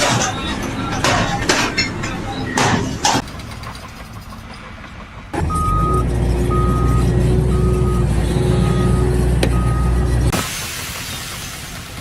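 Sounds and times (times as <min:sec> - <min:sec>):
engine rumble: 0:00.0 - 0:12.0
vehicle reversing alarm beeping: 0:05.4 - 0:10.2.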